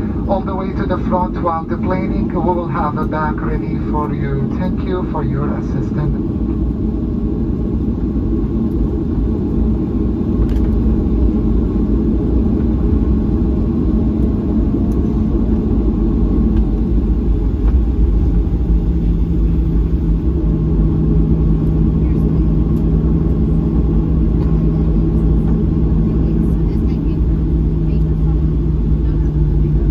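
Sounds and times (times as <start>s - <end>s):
airliner engines rumbling: 0.0s - 29.9s
steady low hum: 0.0s - 29.9s.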